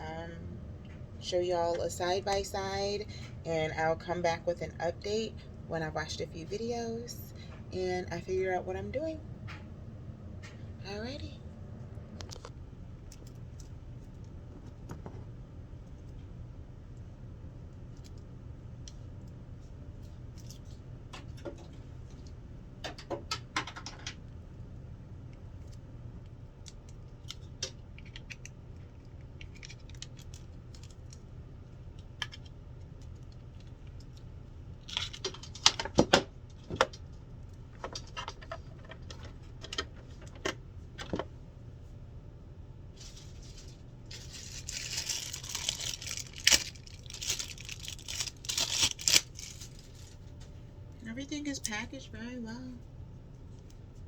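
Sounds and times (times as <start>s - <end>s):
packaging rustling: 43.0s - 50.3s
clicks and knocks of unpacking: 44.1s - 50.2s.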